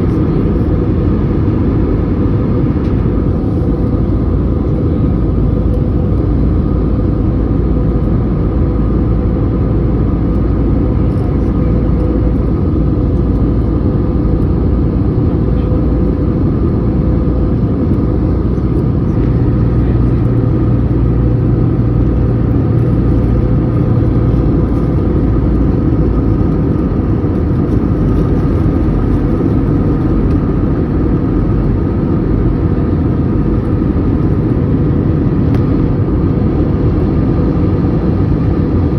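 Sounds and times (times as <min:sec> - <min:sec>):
airliner cabin engine roar: 0:00.0 - 0:38.9
low drone: 0:00.0 - 0:38.9.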